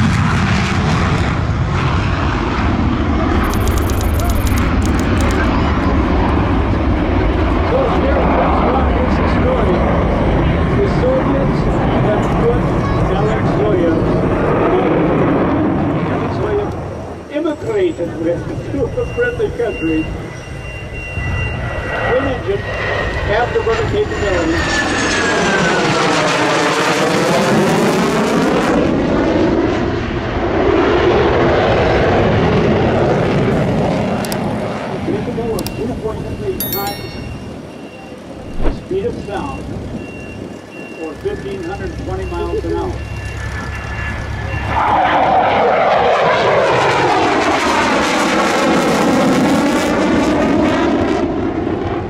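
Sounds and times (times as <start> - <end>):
jet roaring past: 0.0 - 3.4, 43.4 - 52.0.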